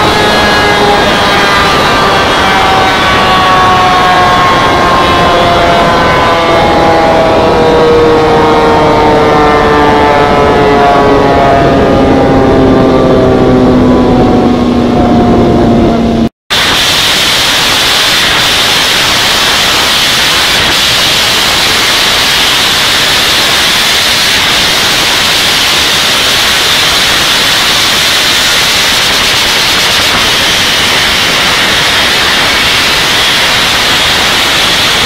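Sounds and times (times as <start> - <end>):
loud steady static hiss: 16.5 - 35.0.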